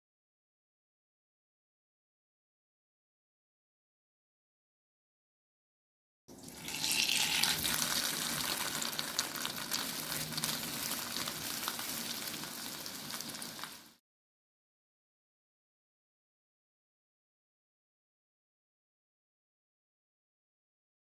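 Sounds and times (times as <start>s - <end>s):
patty frying in crackling oil: 6.3s - 14.0s.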